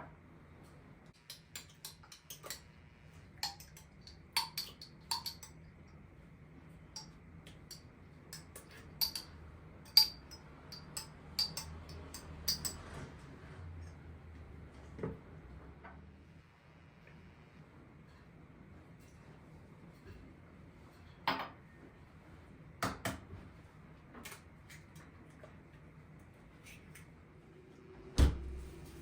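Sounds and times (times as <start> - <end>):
faint steady hum: 13.6 - 29.0.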